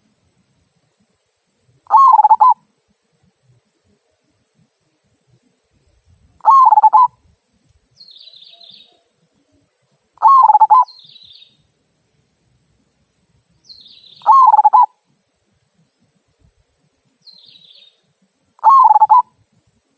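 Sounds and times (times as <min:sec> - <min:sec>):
dove cooing: 0:01.9 - 0:02.6, 0:06.4 - 0:07.2, 0:10.2 - 0:10.9, 0:14.2 - 0:15.0, 0:18.6 - 0:19.3
small bird chirping: 0:01.9 - 0:02.6, 0:06.0 - 0:07.2, 0:07.9 - 0:09.1, 0:10.2 - 0:11.7, 0:13.6 - 0:15.0, 0:17.2 - 0:19.4.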